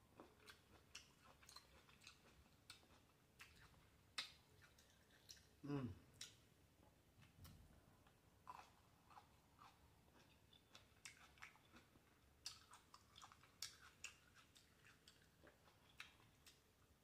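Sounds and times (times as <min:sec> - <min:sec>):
faint chewing with mouth clicks: 0:00.1 - 0:06.5, 0:07.2 - 0:17.0.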